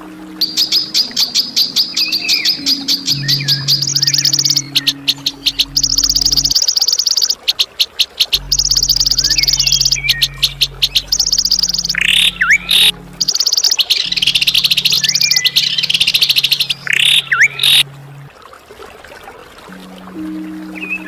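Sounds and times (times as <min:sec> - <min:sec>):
steady low drone: 0:00.0 - 0:06.7, 0:08.4 - 0:18.5
swooping whistled bird notes: 0:00.0 - 0:17.8
songbird trilling: 0:00.4 - 0:17.8.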